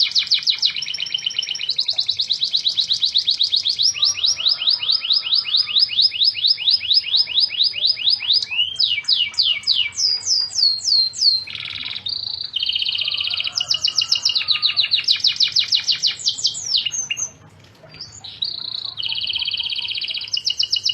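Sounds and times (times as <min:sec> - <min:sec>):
canary singing trills: 0:00.0 - 0:20.9.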